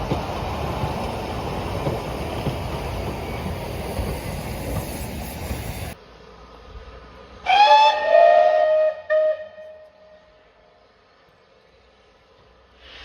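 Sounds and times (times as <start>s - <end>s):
steam locomotive whistle: 7.4s - 10.5s.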